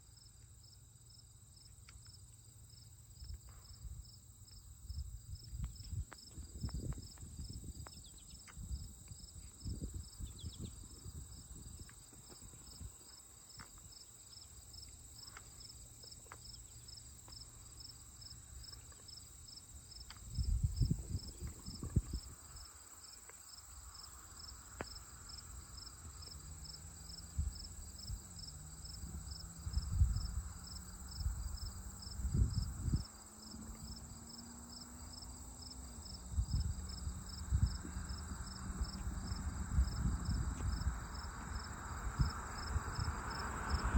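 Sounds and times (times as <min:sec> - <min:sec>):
crickets chirping: 0:00.0 - 0:43.9
low rumbles on microphone: 0:20.3 - 0:22.4, 0:36.3 - 0:43.9.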